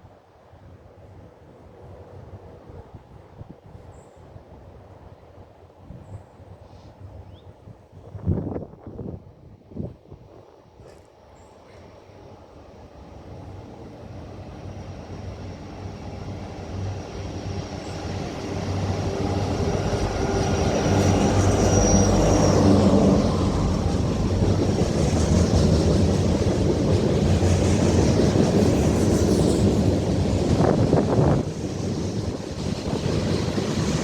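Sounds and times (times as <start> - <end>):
diesel train passing: 8.2 - 34.0.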